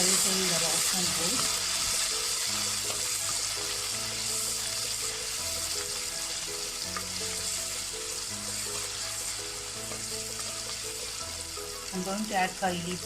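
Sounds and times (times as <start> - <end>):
food sizzling in hot oil: 0.0 - 13.0
light background music: 0.0 - 13.0.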